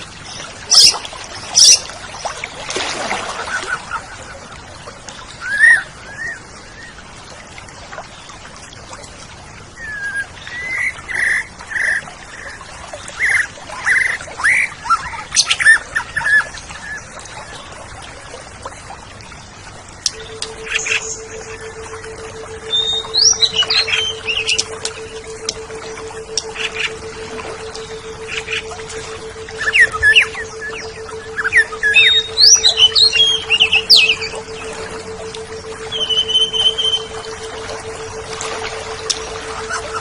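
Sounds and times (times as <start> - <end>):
bird singing: 0.2 - 1.9, 20.0 - 40.0
steady flat tone: 13.5 - 40.0.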